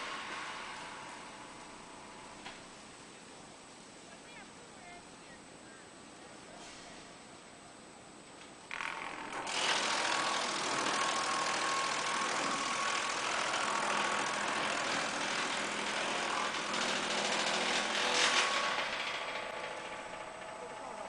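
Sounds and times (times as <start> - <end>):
wood chipper running: 0.0 - 3.0, 8.7 - 21.0
faint machine whine: 0.0 - 21.0.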